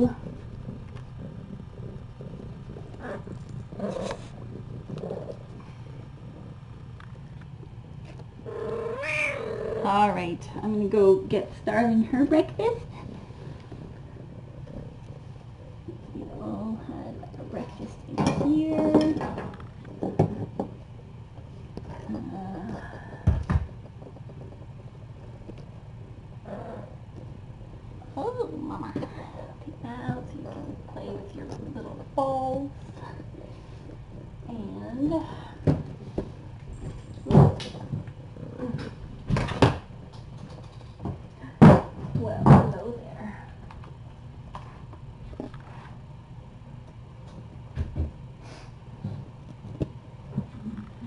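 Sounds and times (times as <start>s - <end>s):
cat purring: 0.0s - 43.6s.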